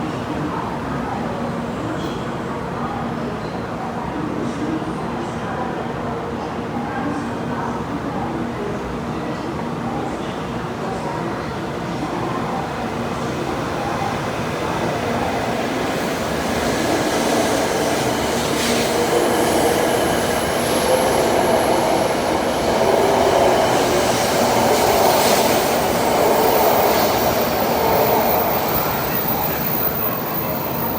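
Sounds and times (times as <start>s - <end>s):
train cars rumbling on rails: 12.4s - 30.9s.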